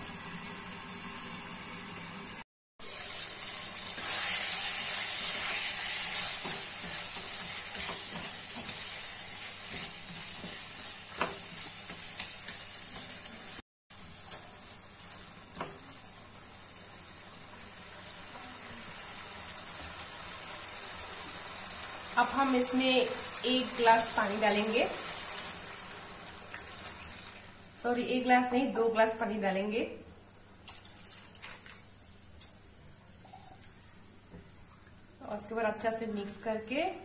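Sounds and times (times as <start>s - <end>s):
potatoes sizzling in a pan: 2.8s - 27.7s.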